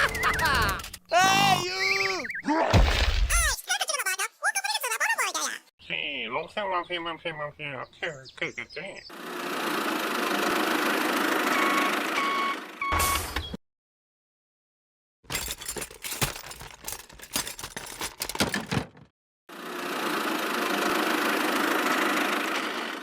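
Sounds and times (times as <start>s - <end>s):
irregular clattering and rattling: 15.3s - 19.1s.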